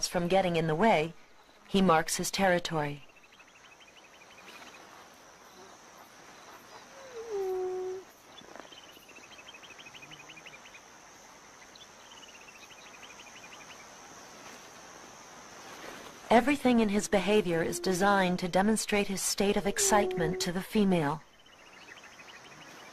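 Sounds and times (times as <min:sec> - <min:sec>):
insect hiss: 0:01.0 - 0:02.4, 0:03.0 - 0:22.9
hyena low call: 0:06.6 - 0:08.1, 0:16.4 - 0:20.8.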